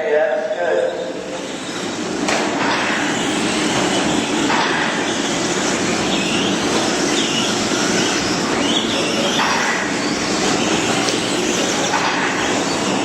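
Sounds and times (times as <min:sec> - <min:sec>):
electric motors whining: 0:00.0 - 0:13.0
tyre and chassis noise: 0:00.8 - 0:13.0.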